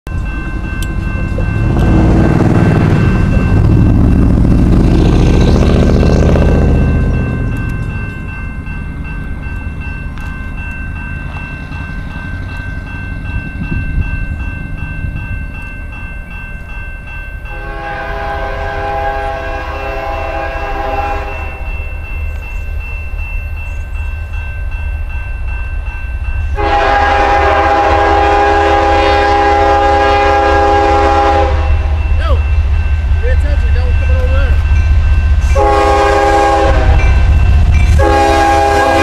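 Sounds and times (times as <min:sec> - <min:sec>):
low rumble of train: 0:00.1 - 0:39.0
locomotive air horn blasts: 0:17.5 - 0:21.7, 0:26.6 - 0:31.9, 0:35.4 - 0:39.0.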